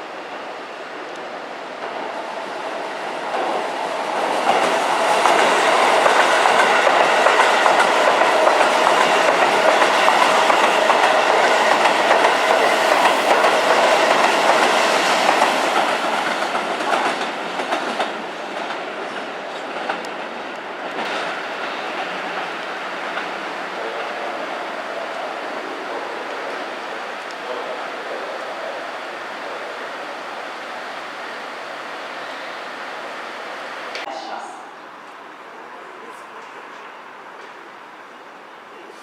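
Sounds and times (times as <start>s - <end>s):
electric train passing: 0.0s - 38.8s
wheels clattering over rail joints: 21.0s - 34.1s.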